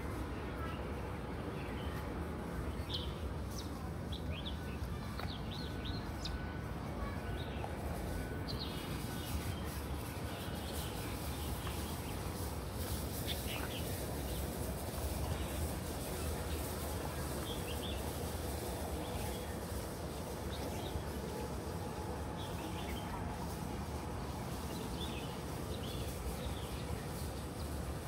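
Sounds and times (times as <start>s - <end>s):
small birds chirping: 8.5s - 28.0s.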